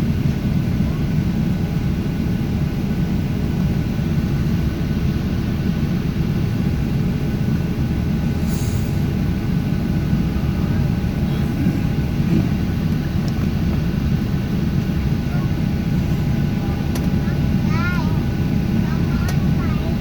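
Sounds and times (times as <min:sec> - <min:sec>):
faint engine whining tones: 0:00.0 - 0:20.0
jet engine cabin rumble: 0:00.0 - 0:20.0
brief hiss: 0:08.4 - 0:09.1.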